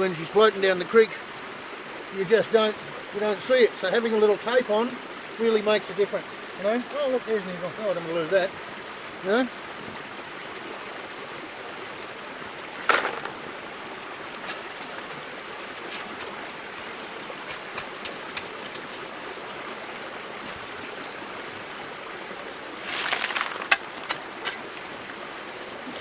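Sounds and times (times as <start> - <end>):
creek water running over rocks: 0.0 - 26.0
clattering noise: 12.8 - 13.4, 22.8 - 24.6.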